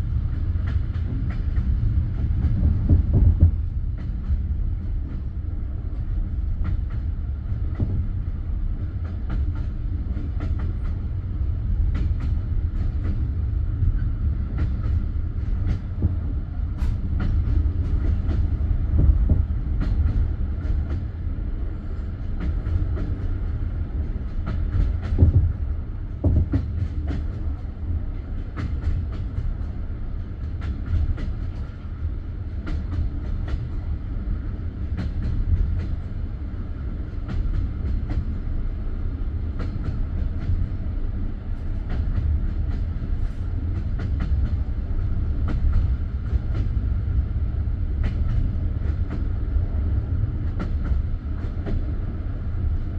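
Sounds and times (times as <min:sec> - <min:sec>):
train carriage rumble: 0:00.0 - 0:52.9.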